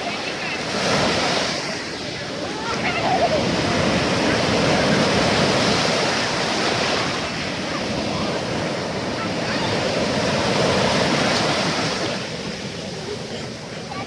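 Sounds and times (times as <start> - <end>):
surf washing onto shore: 0.0 - 14.0.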